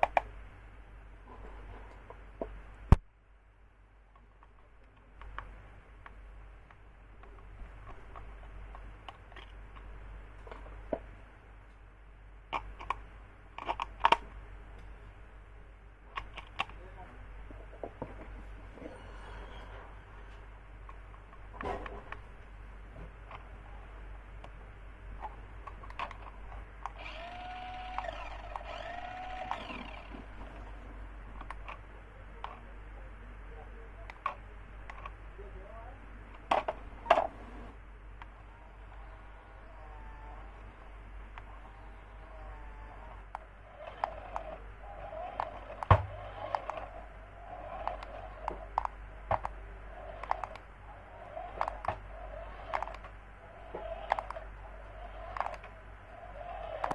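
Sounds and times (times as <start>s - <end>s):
faint low hum: 0.0s - 56.9s
toy electric motor whirring: 26.9s - 30.7s, 38.5s - 40.6s, 41.6s - 56.9s.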